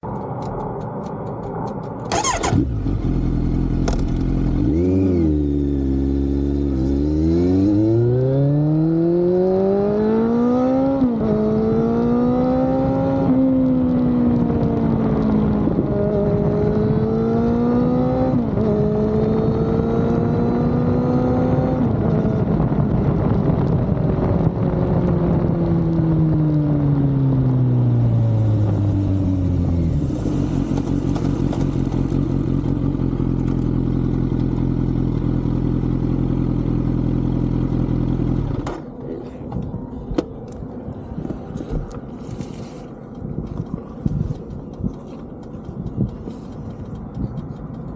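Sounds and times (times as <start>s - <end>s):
motorcycle engine accelerating: 0.0s - 47.9s.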